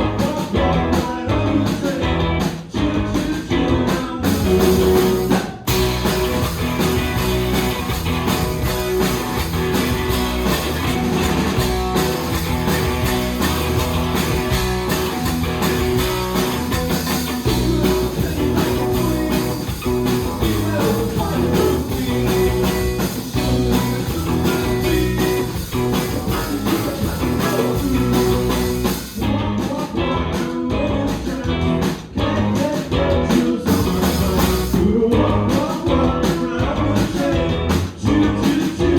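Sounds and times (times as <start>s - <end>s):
bass and drums: 0.0s - 38.9s
electric guitars: 0.0s - 38.9s
person singing: 17.4s - 38.9s.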